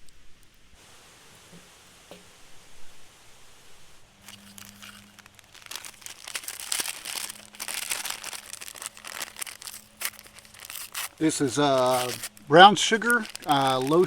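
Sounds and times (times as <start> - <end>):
paper packet crinkling and tearing: 4.2 - 14.0.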